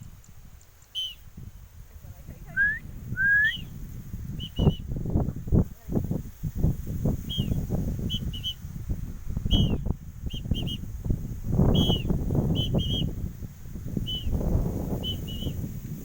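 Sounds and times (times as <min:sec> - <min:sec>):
small bird chirping: 0:00.0 - 0:01.3, 0:03.5 - 0:04.9, 0:07.2 - 0:08.7, 0:09.4 - 0:10.9, 0:11.6 - 0:13.2, 0:14.0 - 0:14.4, 0:15.0 - 0:15.6.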